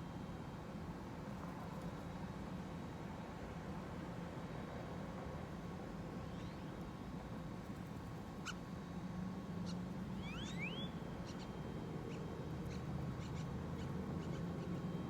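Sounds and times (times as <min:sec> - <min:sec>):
small birds chirping: 0:09.6 - 0:11.5, 0:12.1 - 0:14.9
rising whistled bird calls: 0:10.2 - 0:11.5.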